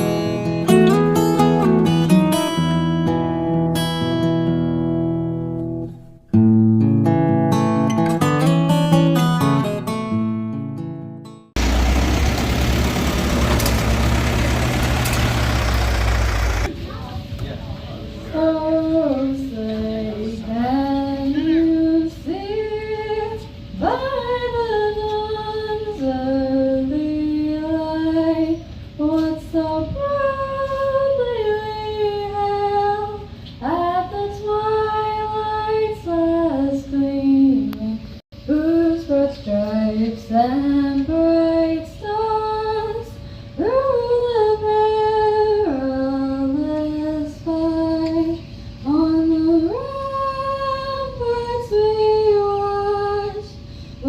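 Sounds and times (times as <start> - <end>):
woman singing slow melody: 18.3 - 53.7.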